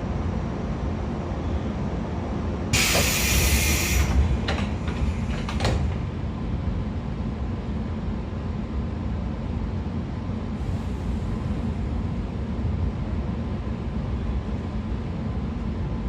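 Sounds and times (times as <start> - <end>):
train car low rumble: 0.0 - 16.0
loud air hiss: 2.8 - 4.3.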